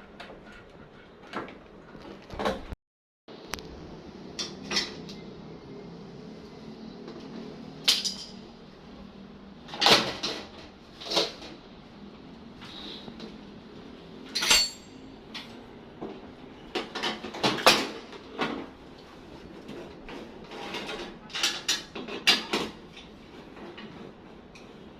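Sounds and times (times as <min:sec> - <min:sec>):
knocks and clinks of tools: 0:07.8 - 0:08.4, 0:14.3 - 0:15.6.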